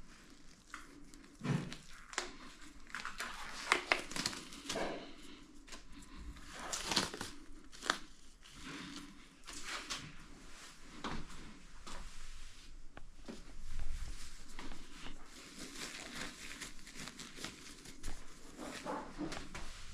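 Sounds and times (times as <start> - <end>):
materials crinkling and tearing: 0.2 - 10.0, 14.6 - 19.6.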